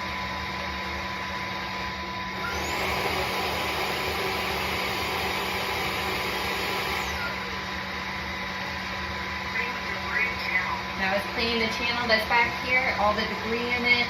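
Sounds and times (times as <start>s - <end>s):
vacuum mop motor whirring: 0.0s - 8.6s.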